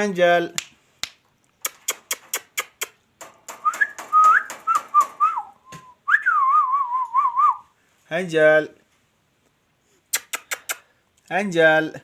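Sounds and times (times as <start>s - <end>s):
sharp clicks: 0.6s - 5.4s, 10.2s - 10.8s
person whistling: 3.6s - 7.7s.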